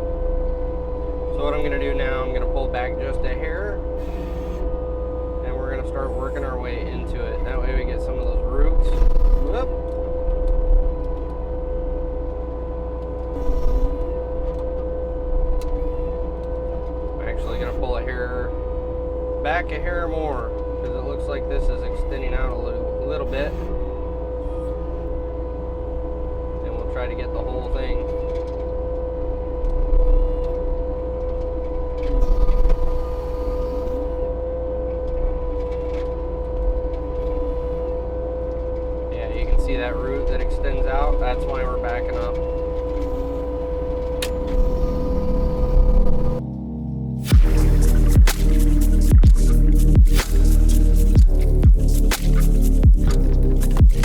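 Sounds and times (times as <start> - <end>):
diesel engine running hard: 0.0 - 29.6, 47.3 - 54.0
mulching head spinning whine: 0.0 - 46.5, 47.2 - 54.0
mulcher grinding stump: 47.3 - 54.0.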